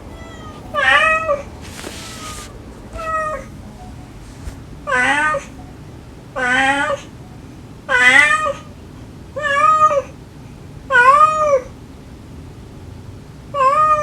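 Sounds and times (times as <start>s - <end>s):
cat meowing loudly: 0.0s - 3.5s.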